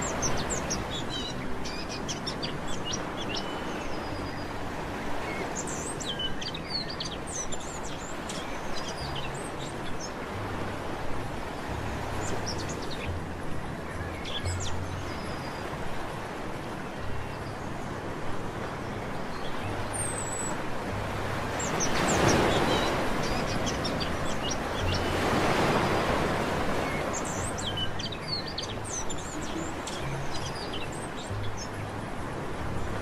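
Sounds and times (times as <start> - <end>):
small birds chirping: 0.0 - 10.2, 21.5 - 31.9
sea waves washing onto beach: 0.0 - 33.0.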